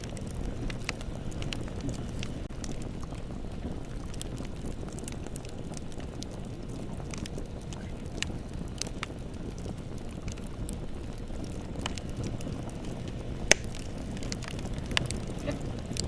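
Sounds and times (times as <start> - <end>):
bonfire rumbling and crackling: 0.0 - 16.0
sharp fire pop: 13.4 - 16.0.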